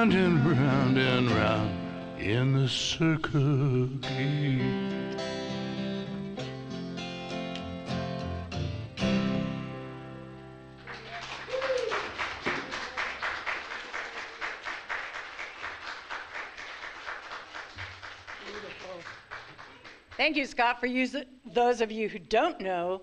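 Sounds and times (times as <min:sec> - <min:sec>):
acoustic guitar strumming: 0:00.0 - 0:10.8
audience applauding: 0:10.8 - 0:20.4
person cheering: 0:11.0 - 0:13.2.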